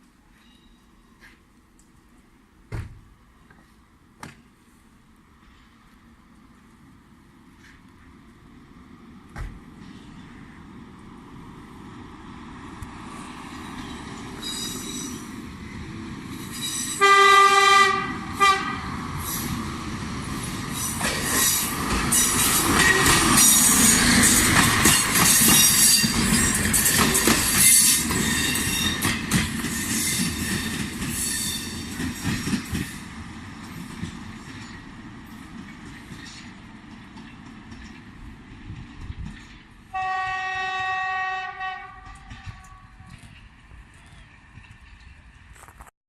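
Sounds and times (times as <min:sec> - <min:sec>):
passing train rumble: 0:00.0 - 0:45.9
wheel squeal: 0:13.8 - 0:15.3
train horn blast: 0:17.0 - 0:19.0, 0:39.9 - 0:43.3.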